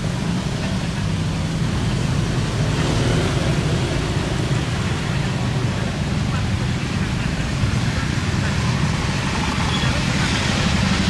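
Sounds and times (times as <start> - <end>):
engine rumble: 0.0 - 11.0.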